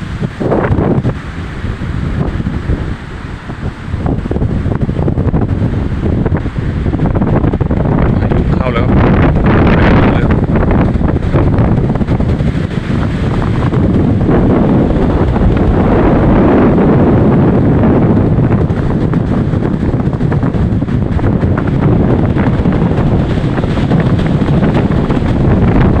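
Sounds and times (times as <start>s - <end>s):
storm wind buffeting microphone: 0.0s - 26.0s.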